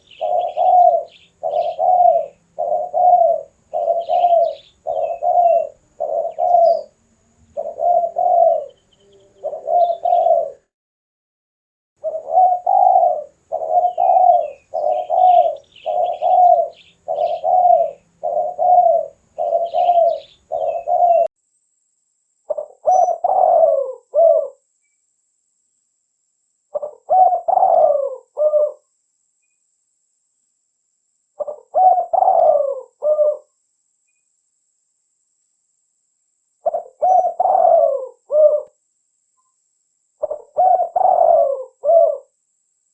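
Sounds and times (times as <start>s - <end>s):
dove cooing: 0.0s - 10.7s, 12.0s - 21.3s, 22.5s - 24.7s, 26.7s - 28.9s, 31.4s - 33.6s, 36.6s - 38.8s, 40.2s - 42.4s
small bird chirping: 0.0s - 10.7s, 12.0s - 21.3s, 22.4s - 25.1s, 26.7s - 29.8s, 31.3s - 34.4s, 36.6s - 38.8s, 39.4s - 42.4s.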